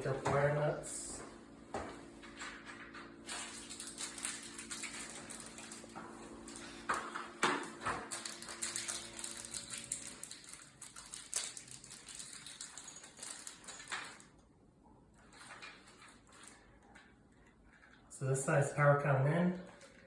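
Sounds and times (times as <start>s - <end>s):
wires and small parts handled: 2.4s - 14.4s, 15.2s - 18.0s, 19.6s - 20.0s.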